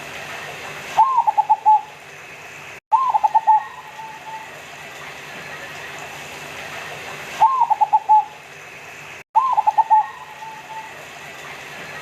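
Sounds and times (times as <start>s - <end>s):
dove cooing: 1.0s - 1.9s, 3.0s - 4.6s, 7.4s - 8.4s, 9.4s - 11.1s.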